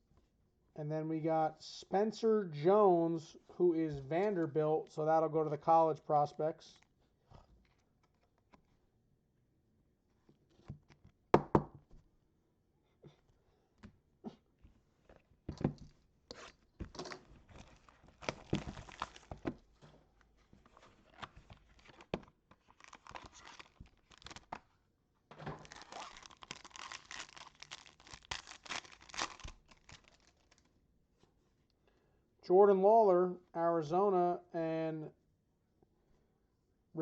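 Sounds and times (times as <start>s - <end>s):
wrapper tearing and crinkling: 17.5s - 19.4s, 21.2s - 24.6s, 25.5s - 30.7s.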